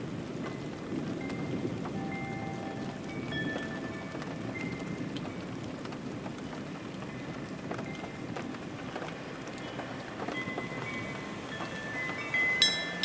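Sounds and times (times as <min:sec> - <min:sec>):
steady rain falling: 0:00.0 - 0:13.0
faint high ringing chimes: 0:01.2 - 0:05.0, 0:10.3 - 0:13.0.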